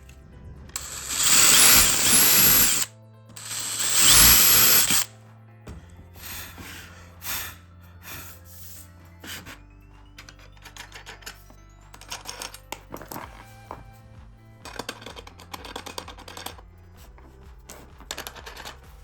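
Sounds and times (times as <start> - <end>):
background music: 0.0 - 19.0
power tool running: 0.8 - 5.1.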